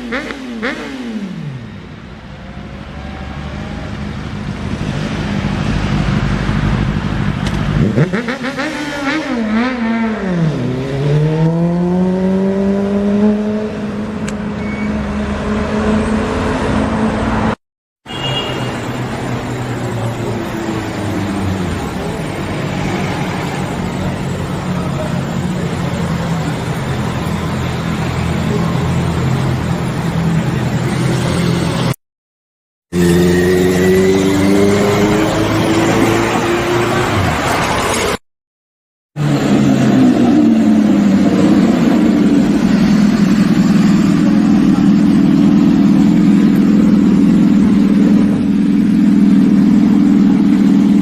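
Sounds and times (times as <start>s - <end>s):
motorcycle engine revving: 0.0s - 17.6s, 32.9s - 38.2s, 39.2s - 51.0s.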